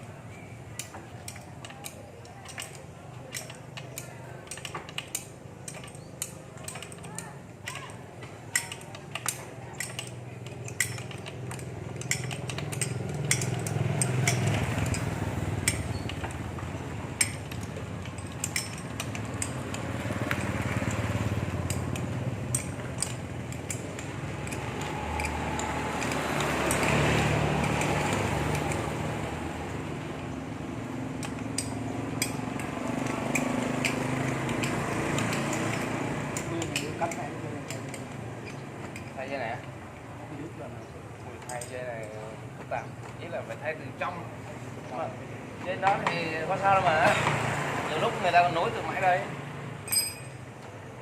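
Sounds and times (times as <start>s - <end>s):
metallic clinks of tools: 0.7s - 29.0s, 31.2s - 39.2s, 49.8s - 50.7s.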